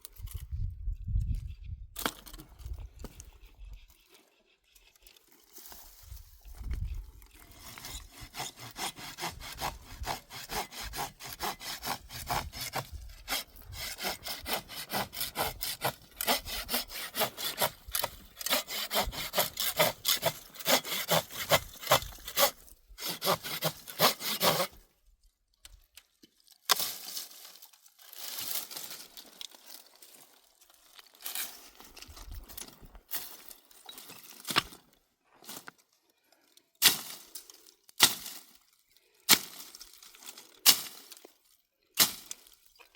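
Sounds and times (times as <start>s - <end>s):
hand saw cutting wood: 7.5s - 24.8s.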